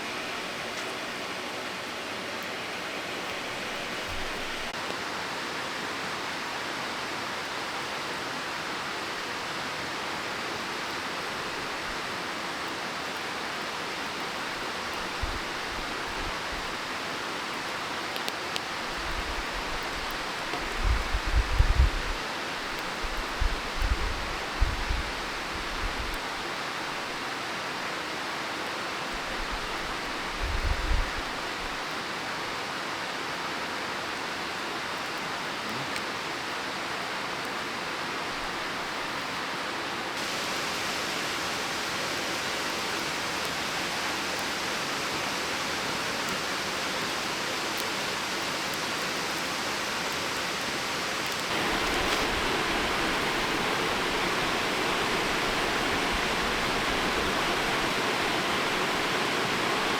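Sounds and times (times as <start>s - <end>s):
waterfall roaring: 38.0s - 59.9s.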